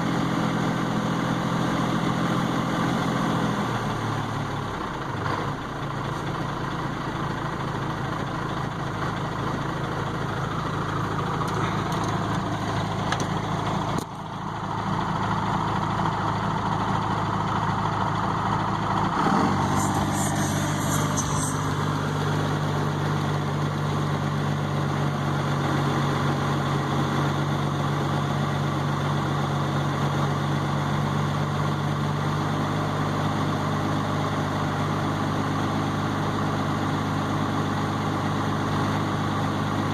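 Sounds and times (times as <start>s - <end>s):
diesel engine idling: 2.9s - 33.8s.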